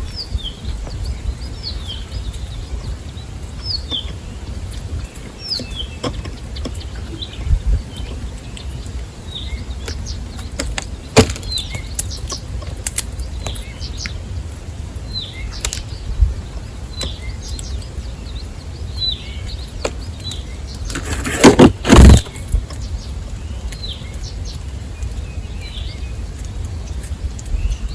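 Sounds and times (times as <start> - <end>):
steady low rumble: 0.0 - 11.9
small bird chirping: 0.0 - 27.9
loud rustling burst: 20.9 - 22.6.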